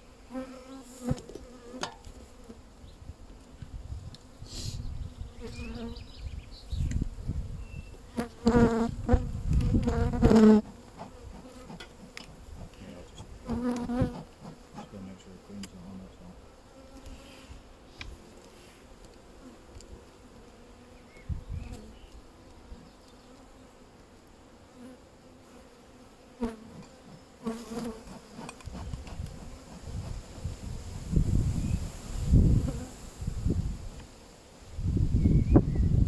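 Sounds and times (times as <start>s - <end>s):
honeybees buzzing: 0.1s - 2.7s, 7.1s - 17.6s, 24.6s - 34.2s.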